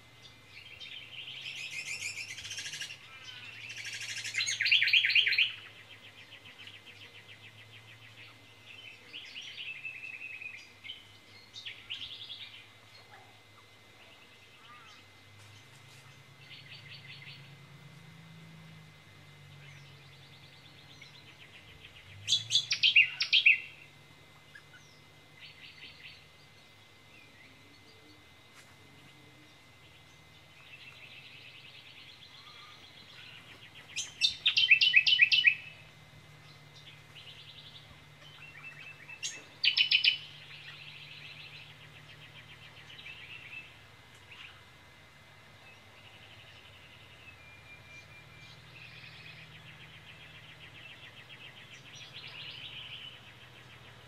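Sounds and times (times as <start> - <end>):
birds chattering and trilling: 0.0 - 54.0
bird sharp high note runs: 19.3 - 28.0.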